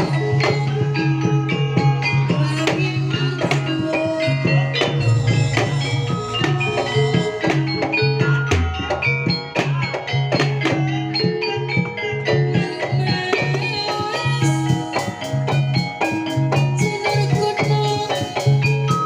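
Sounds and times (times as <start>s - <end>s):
struck pitched percussion: 0.0s - 16.8s
drums: 0.0s - 19.0s
deep low note: 5.0s - 8.6s.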